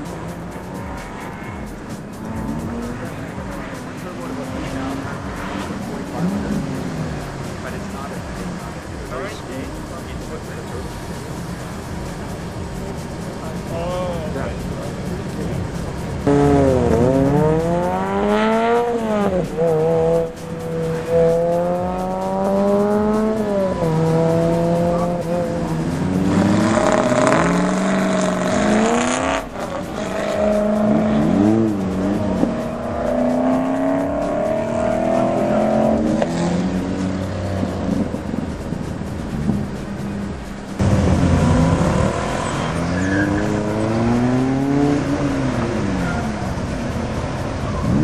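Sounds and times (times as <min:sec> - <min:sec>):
car rushing past: 0:00.0 - 0:48.0
sports car engines revving: 0:00.0 - 0:48.0.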